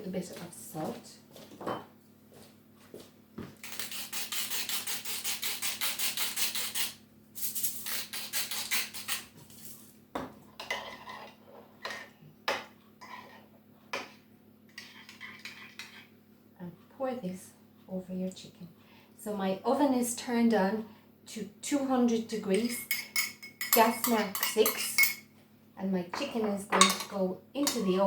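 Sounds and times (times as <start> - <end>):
kitchenware knocks and clinks: 1.6 - 1.9, 26.2 - 27.9.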